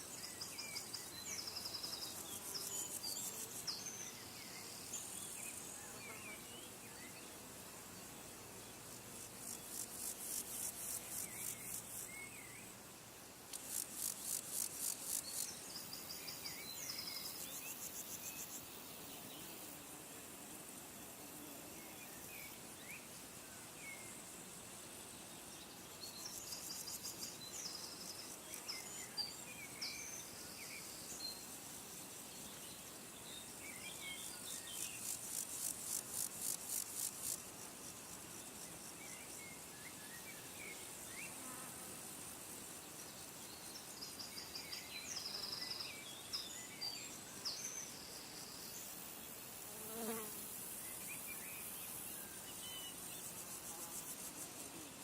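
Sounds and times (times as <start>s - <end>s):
faint steady hiss: 0.0s - 55.0s
insect trills: 9.2s - 12.7s, 13.5s - 18.9s, 21.8s - 55.0s.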